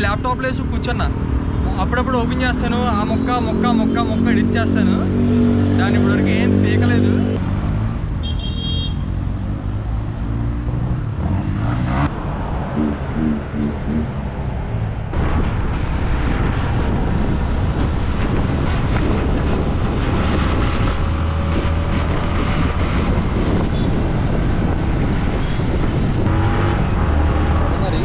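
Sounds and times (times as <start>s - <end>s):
road rumble: 0.0s - 28.0s
motorcycle engine: 7.4s - 15.2s, 26.3s - 28.0s
wind rushing over microphone: 9.3s - 28.0s.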